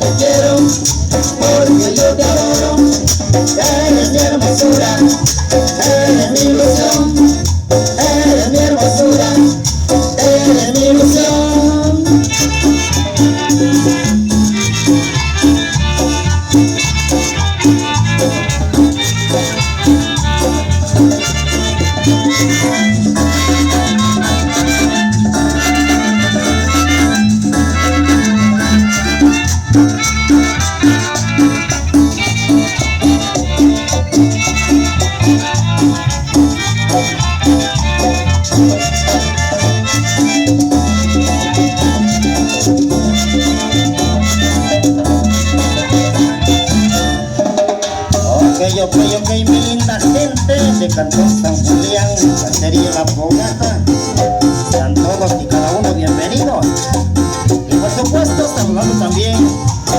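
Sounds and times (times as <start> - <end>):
repeating bass line: 0.0 - 59.9
shaker percussion: 0.0 - 59.9
upbeat latin dance music: 0.0 - 59.9.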